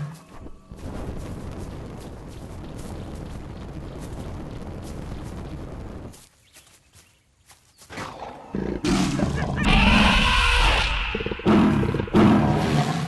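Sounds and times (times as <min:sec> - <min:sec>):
large animal roaring: 0:08.1 - 0:13.0.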